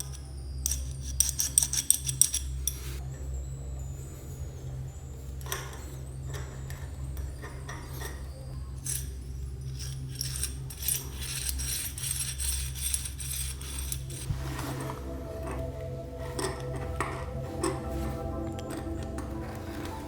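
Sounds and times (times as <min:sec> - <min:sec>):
small metal parts clinking: 0:00.0 - 0:03.0, 0:05.4 - 0:14.3.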